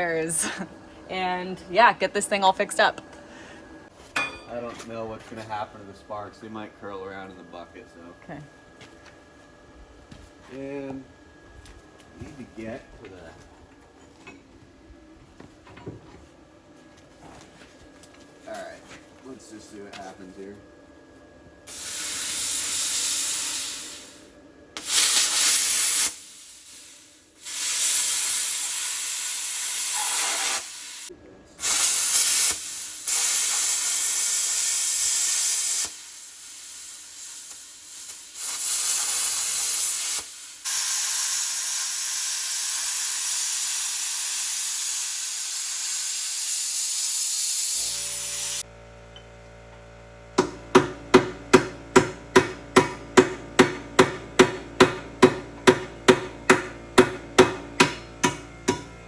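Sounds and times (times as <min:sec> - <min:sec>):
steady hum: 0:00.0 - 0:21.8
plasma cutter hissing: 0:21.7 - 0:48.6.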